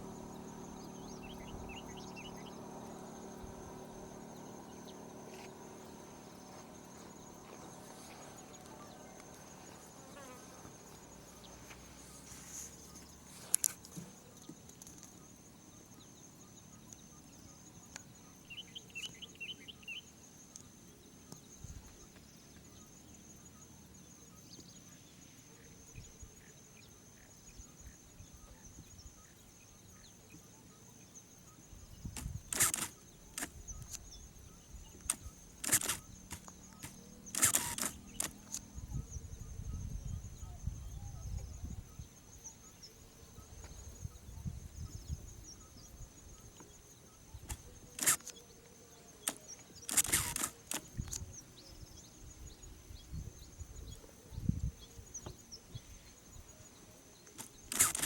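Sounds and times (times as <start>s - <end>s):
high insect whine: 0.0s - 58.0s
sharp click: 32.1s - 34.0s, 35.0s - 38.7s, 47.4s - 48.4s, 49.2s - 51.3s, 57.2s - 58.0s.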